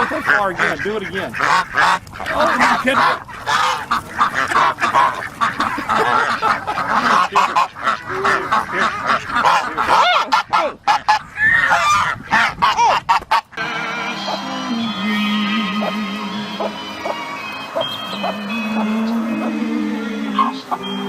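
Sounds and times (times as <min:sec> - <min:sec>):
waterfowl calling: 0:00.0 - 0:21.0
background music: 0:13.6 - 0:21.0.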